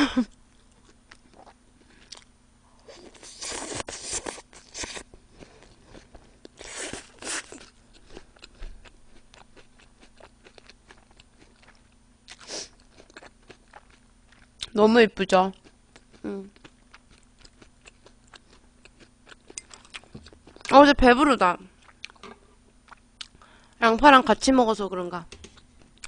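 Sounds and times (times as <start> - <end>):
crunchy onion chewing: 2.9 - 14.8, 15.6 - 20.8.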